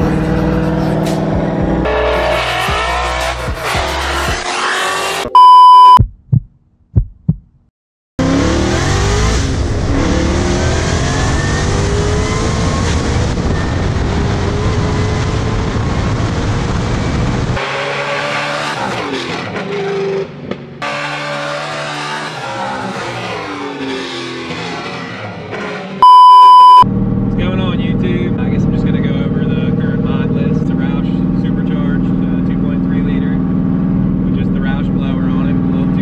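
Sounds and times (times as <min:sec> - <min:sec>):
music: 0:00.0 - 0:04.5
car engine accelerating: 0:00.0 - 0:05.9, 0:08.2 - 0:20.0
loud steady beep: 0:05.4 - 0:06.0, 0:26.0 - 0:26.8.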